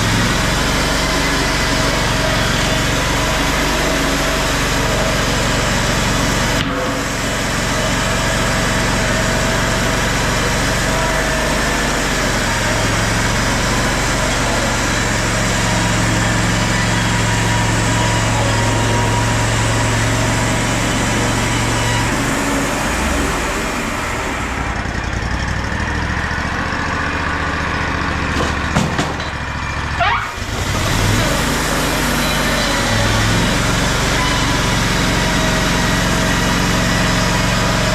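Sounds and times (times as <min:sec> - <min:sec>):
sawmill engine running: 0:00.0 - 0:37.9
sharp knocks: 0:28.4 - 0:29.4.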